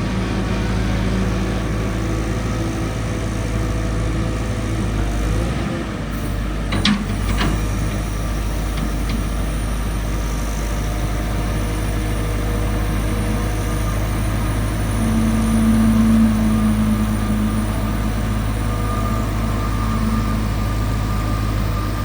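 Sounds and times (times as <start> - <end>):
diesel engine idling: 0.0 - 22.0
steady higher hum: 10.4 - 22.0.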